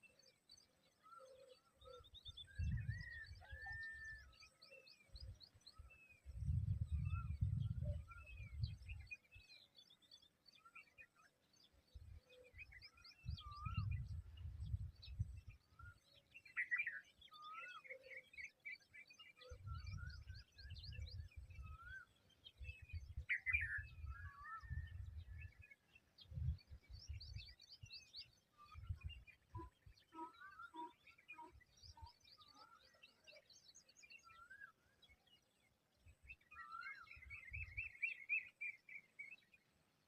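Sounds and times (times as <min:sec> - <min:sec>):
birds chirping and calling: 0:00.1 - 0:35.6.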